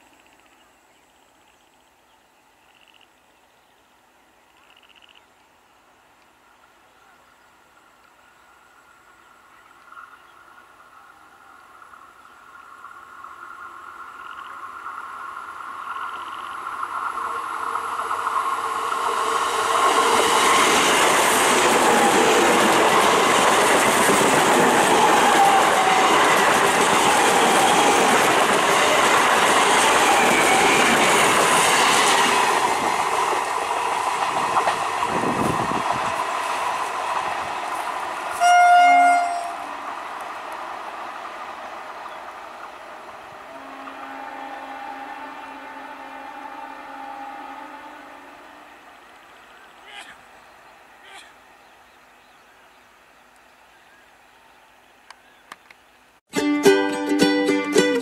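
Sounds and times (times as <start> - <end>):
train wheels rumbling over rails: 11.8 - 45.4
train horn blast: 38.3 - 39.9, 43.4 - 48.9.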